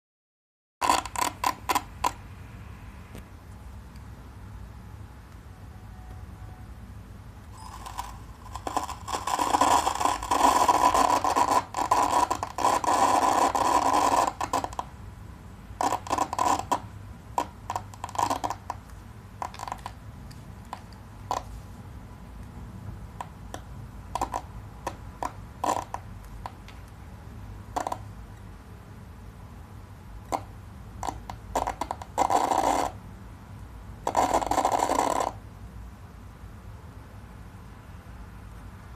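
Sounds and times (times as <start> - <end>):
computer static crackling: 0.8 - 2.2, 7.5 - 15.0, 15.8 - 20.0, 20.7 - 21.6, 24.1 - 26.7, 27.7 - 28.1, 30.3 - 33.0, 34.0 - 35.4.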